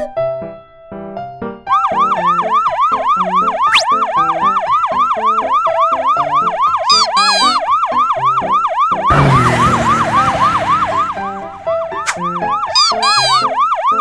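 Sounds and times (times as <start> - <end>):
quick upward whistle: 3.6 - 3.9, 9.1 - 12.6
fast yelping siren: 8.5 - 14.0
short falling sound effect: 9.1 - 12.3.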